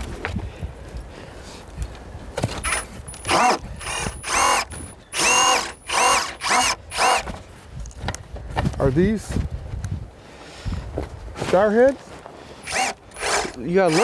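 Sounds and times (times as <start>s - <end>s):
cordless drill motor whine: 2.6s - 7.3s, 12.6s - 14.0s.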